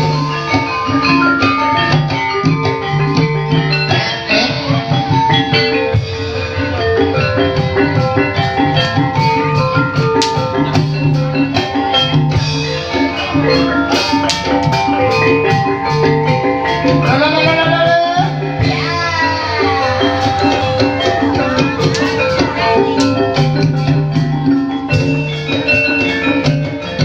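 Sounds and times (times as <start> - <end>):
drums: 0.0 - 27.0
gamelan ensemble playing: 0.0 - 27.0
upward sliding pitch: 12.8 - 24.8.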